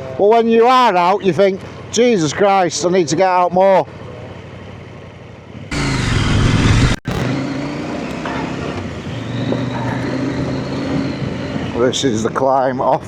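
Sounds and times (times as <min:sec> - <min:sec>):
dirt bike engine revving: 0:05.7 - 0:09.5.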